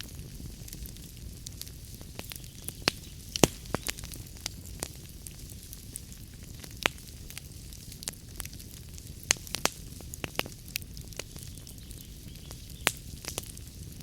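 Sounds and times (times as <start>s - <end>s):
fire pops and snaps: 0.0s - 14.0s
soft hiss and low rumble: 0.0s - 14.0s
wood fire crackling: 0.0s - 14.0s.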